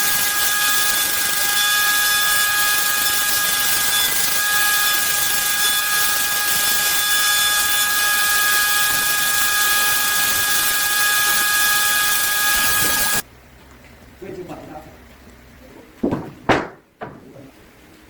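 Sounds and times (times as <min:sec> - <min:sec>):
electric power tool running: 0:00.0 - 0:13.2.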